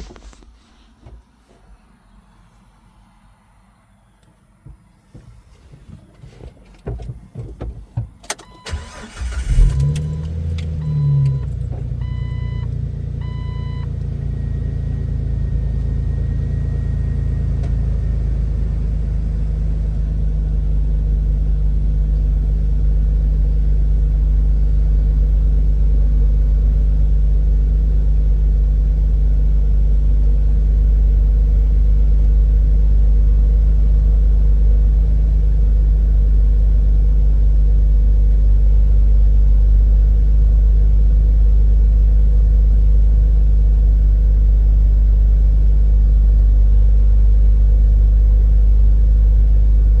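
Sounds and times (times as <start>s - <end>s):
car engine idling: 4.7s - 50.0s
engine cranking: 8.0s - 12.1s
dashboard warning chime: 8.4s - 15.0s.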